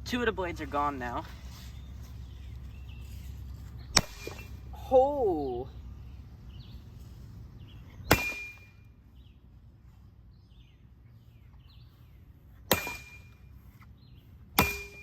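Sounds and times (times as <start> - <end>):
sharp metallic clangs: 3.9 - 4.6, 8.1 - 8.8, 12.7 - 13.4, 14.6 - 15.0.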